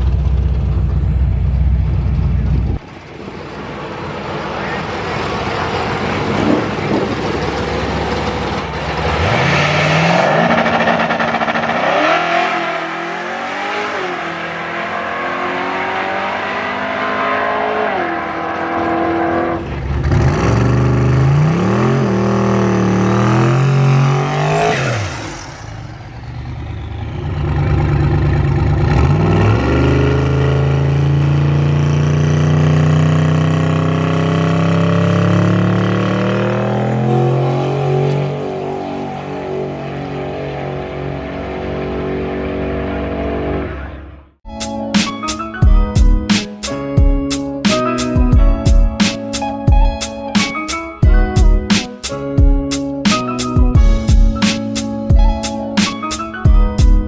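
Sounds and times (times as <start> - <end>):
engine revving loudly: 4.6 - 44.2
sharp high rising sweep: 9.0 - 19.6, 23.2 - 26.8.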